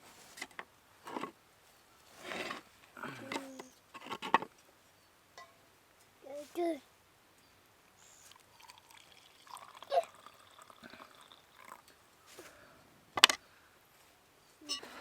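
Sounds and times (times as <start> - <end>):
water pouring and trickling: 8.3 - 11.9.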